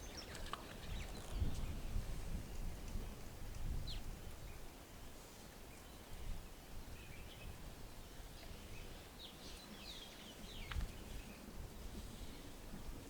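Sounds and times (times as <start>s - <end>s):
birds chirping: 0.0s - 3.2s.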